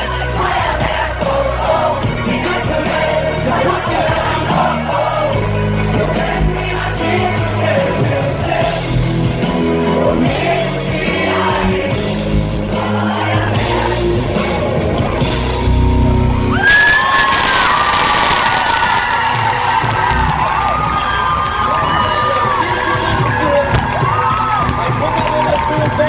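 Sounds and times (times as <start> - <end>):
live pop band with singing: 0.0 - 26.0
crowd cheering and whooping: 12.9 - 26.0.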